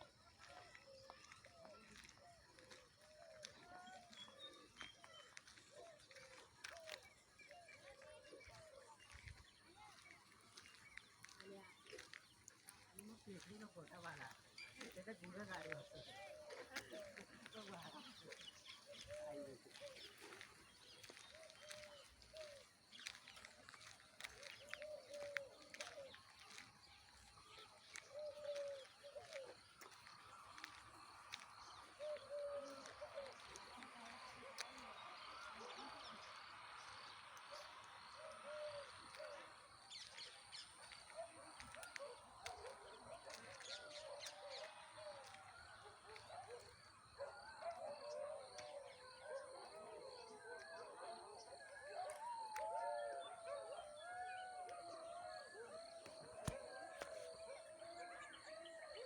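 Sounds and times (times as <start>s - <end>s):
small birds chirping: 0.0s - 52.6s
chorus of animal calls: 0.0s - 59.0s
dove cooing: 27.5s - 29.6s, 31.9s - 34.9s, 37.6s - 39.6s.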